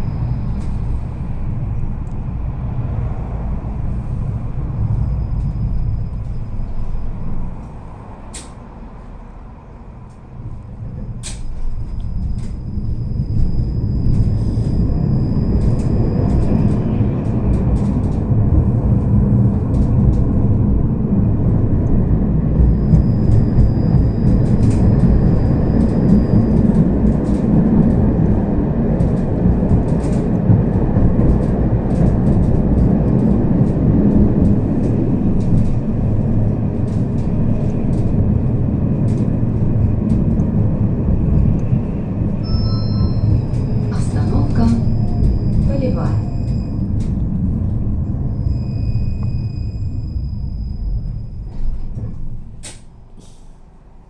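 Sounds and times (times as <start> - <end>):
tram rumbling on rails: 0.0 - 54.0
faint high whine: 42.4 - 46.8.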